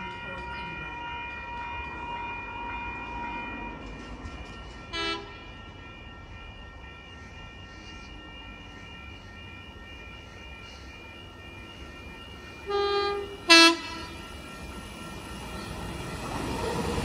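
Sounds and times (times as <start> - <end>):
train rumbling: 0.0 - 17.0
train horn blast: 12.7 - 14.1.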